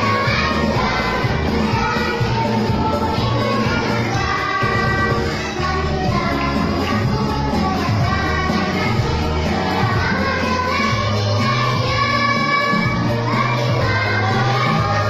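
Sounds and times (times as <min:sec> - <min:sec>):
low accompaniment: 0:00.0 - 0:14.7
choir singing: 0:00.0 - 0:15.0.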